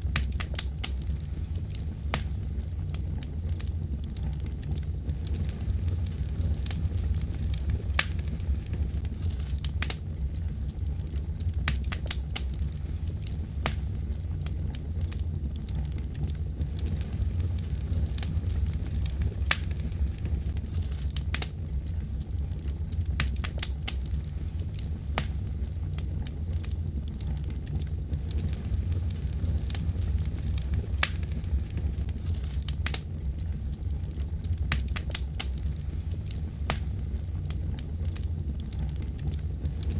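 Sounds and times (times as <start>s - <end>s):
fire crackling and popping: 0.0s - 39.9s
steady low rumble: 0.0s - 39.9s.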